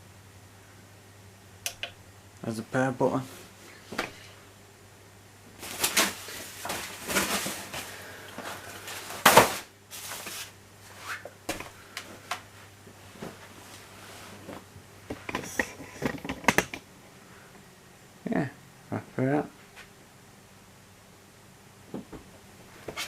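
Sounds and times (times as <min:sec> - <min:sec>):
packaging rustling: 0:05.6 - 0:10.5.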